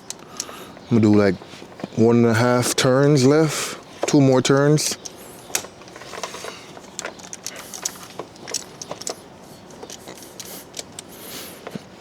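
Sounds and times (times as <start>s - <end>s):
hand tool clicking and rattling: 0.0s - 0.9s, 3.9s - 11.8s.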